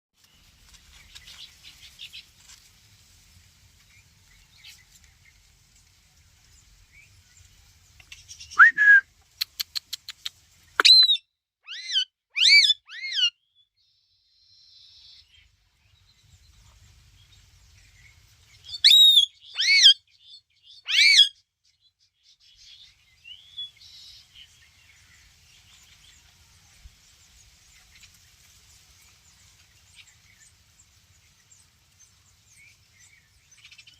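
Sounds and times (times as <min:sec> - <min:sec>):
parakeet whistled calls: 0:10.8 - 0:13.3, 0:18.8 - 0:20.0, 0:20.8 - 0:21.3.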